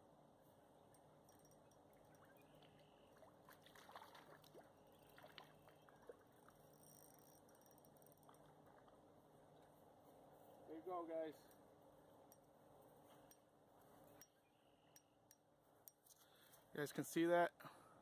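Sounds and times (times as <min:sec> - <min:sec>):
trickling creek water: 0:01.0 - 0:09.6
small water splashes: 0:02.2 - 0:06.6.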